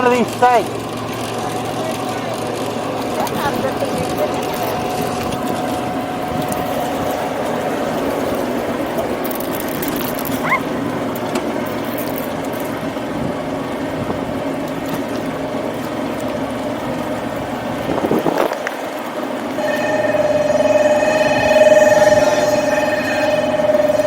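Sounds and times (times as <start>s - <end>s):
small boat motor running: 0.0s - 24.0s
steady ringing tone: 0.5s - 10.2s, 18.8s - 24.0s.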